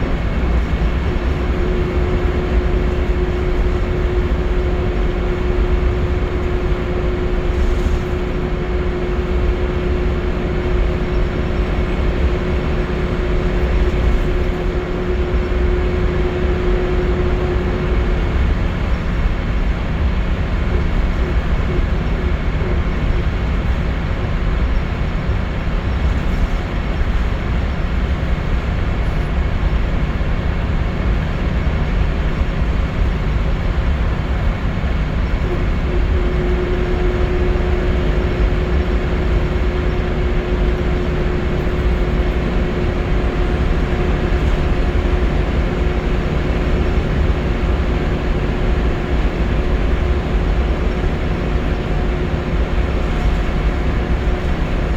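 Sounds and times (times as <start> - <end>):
steady whine: 0.0 - 23.6, 31.3 - 54.9
bus engine rumble: 0.0 - 54.9
road noise: 34.8 - 54.9.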